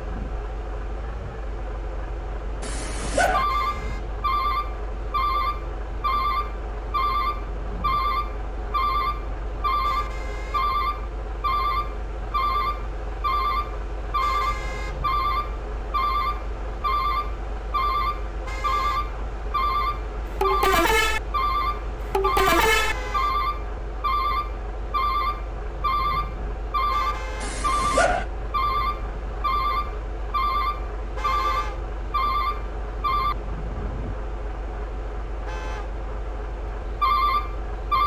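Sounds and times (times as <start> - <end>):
steady low rumble: 0.0 - 38.0
horn-like toots: 20.4 - 21.2, 22.1 - 23.2.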